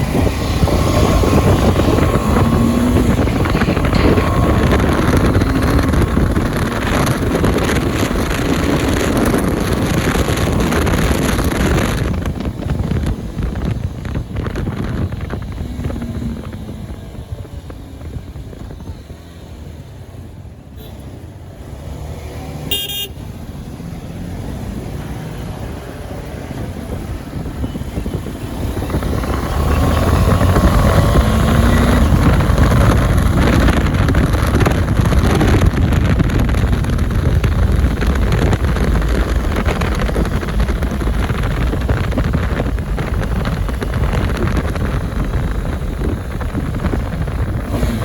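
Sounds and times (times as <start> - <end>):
motorcycle engine roaring: 0.0 - 48.0
horn beep: 22.7 - 23.2.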